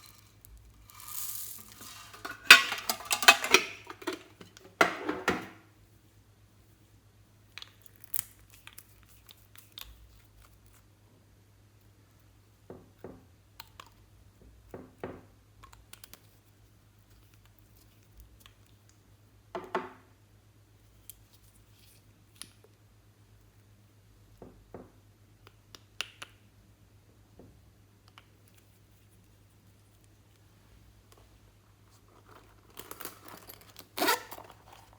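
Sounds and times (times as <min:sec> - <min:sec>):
objects clicking and scraping on table: 0:00.0 - 0:05.5
low electrical hum: 0:00.0 - 0:34.9.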